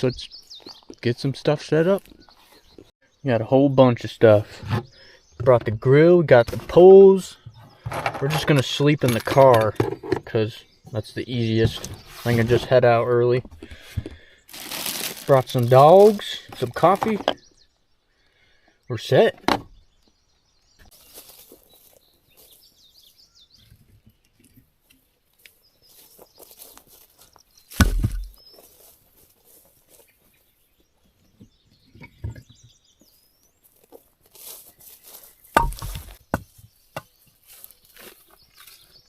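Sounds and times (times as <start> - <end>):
birds chirping faintly: 0.0 - 39.0
camping gear rustling and clicking: 7.5 - 10.4, 11.5 - 17.5, 20.8 - 39.0
heavy thumps: 27.8 - 28.4, 35.6 - 37.1.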